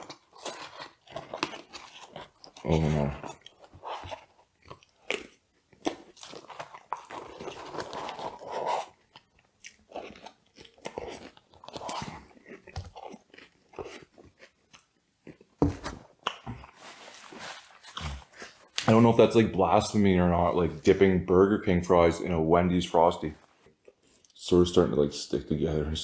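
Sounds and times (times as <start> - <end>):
chewing and crunching food: 0.0 - 19.0.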